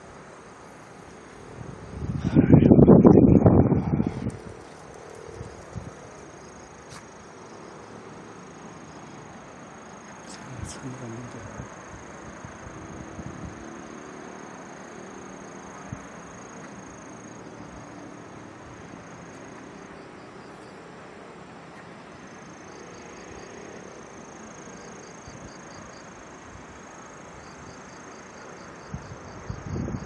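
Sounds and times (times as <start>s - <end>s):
insects trilling: 0.0s - 30.0s
wind buffeting microphone: 1.4s - 6.4s, 10.5s - 13.7s, 28.9s - 30.0s.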